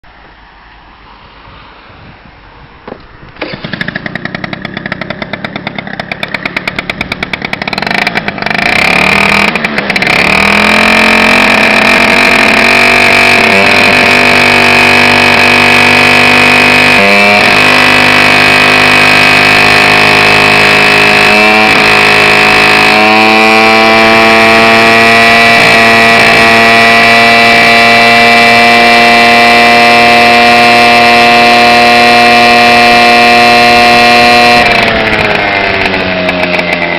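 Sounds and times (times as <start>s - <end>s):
scooter engine starting and running: 2.0s - 36.9s.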